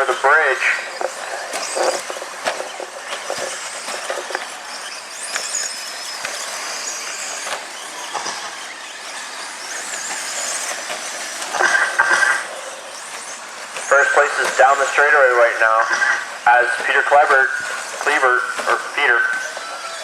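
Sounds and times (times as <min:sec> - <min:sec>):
toy truck motors whining: 0:00.0 - 0:20.0
steady rush of noise: 0:10.7 - 0:19.4.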